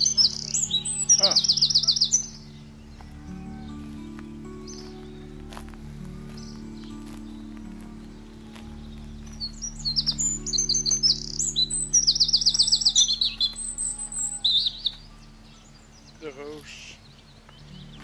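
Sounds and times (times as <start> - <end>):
songbird chirping and trilling: 0.0 - 18.0.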